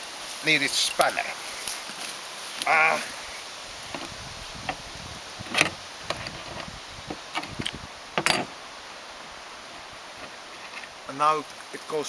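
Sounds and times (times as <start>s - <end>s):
metallic knocks: 5.4s - 8.5s.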